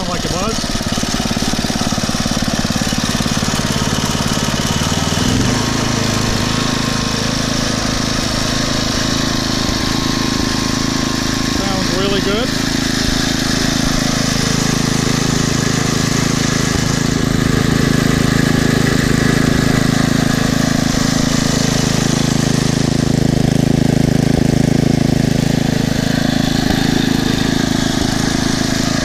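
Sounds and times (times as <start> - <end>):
small engine running steadily: 0.0 - 29.0.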